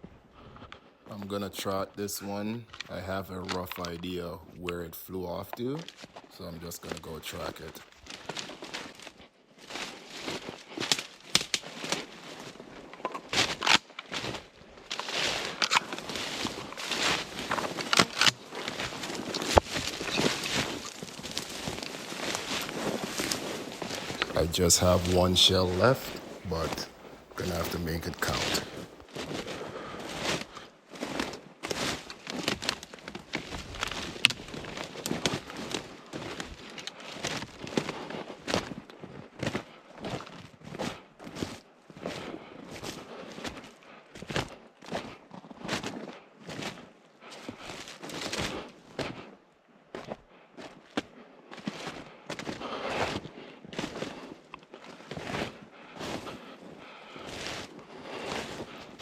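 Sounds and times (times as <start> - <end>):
footsteps crunching on forest floor: 1.2 - 59.0
twig snapping: 10.9 - 11.7, 15.5 - 24.3
dry debris crackling: 12.8 - 30.6.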